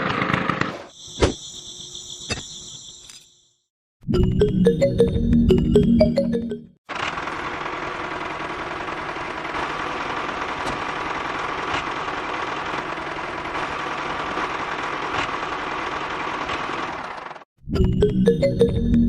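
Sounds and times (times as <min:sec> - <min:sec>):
small motor running: 0:06.9 - 0:17.4.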